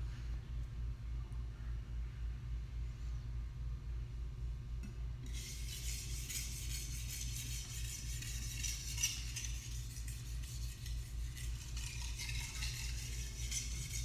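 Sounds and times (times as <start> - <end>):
knife scraping on whetstone: 5.3 - 14.0.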